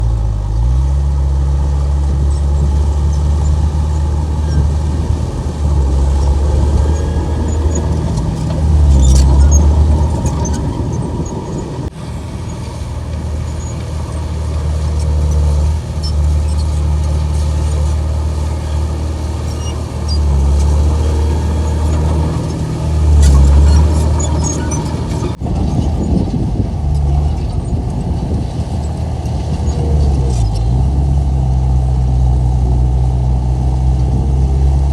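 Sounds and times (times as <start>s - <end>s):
bulldozer diesel engine working: 0.0s - 34.9s
faint high squeaks and clicks: 2.2s - 12.8s, 14.8s - 26.3s, 28.6s - 30.8s.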